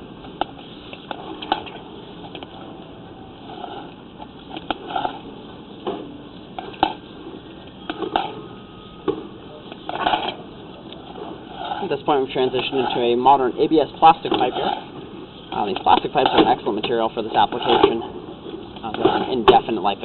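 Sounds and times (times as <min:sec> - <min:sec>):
scraping rustles: 0:09.8 - 0:13.4.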